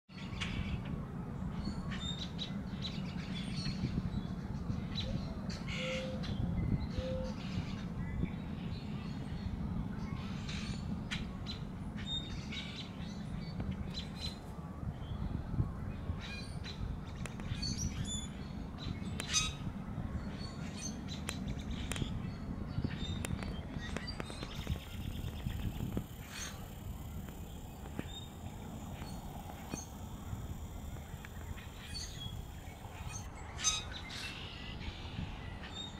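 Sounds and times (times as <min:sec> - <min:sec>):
birds chirping and calling: 0:16.2 - 0:35.9.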